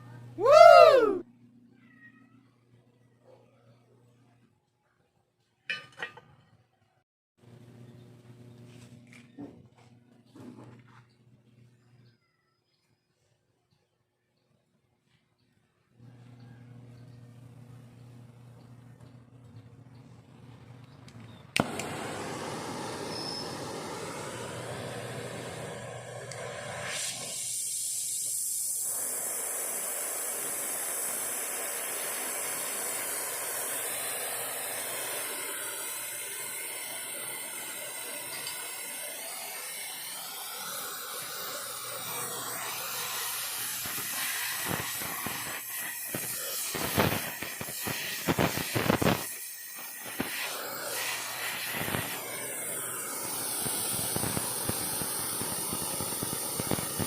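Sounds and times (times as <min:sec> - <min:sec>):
torch flame hissing: 0:21.6 - 0:57.0
sharp crackles and pops: 0:42.7 - 0:50.5, 0:51.4 - 0:52.3, 0:53.6 - 0:57.0.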